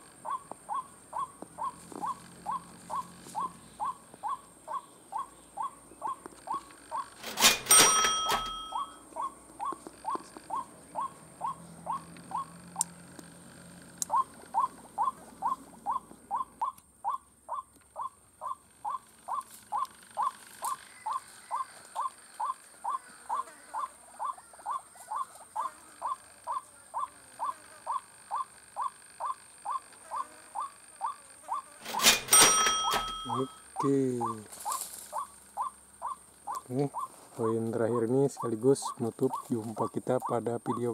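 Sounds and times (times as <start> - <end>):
bird calling harsh notes: 0.2 - 12.9, 14.0 - 40.9
sharp ringing burst: 7.2 - 9.0, 31.8 - 33.8.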